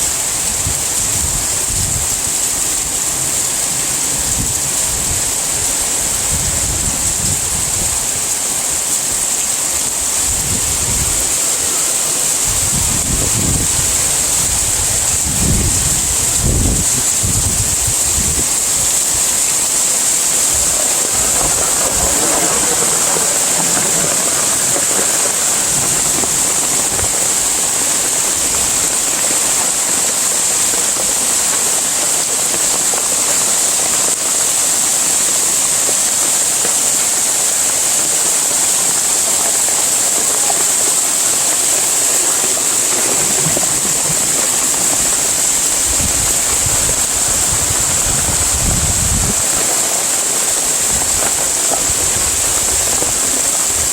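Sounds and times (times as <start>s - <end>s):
heavy rain hissing: 0.0s - 53.9s.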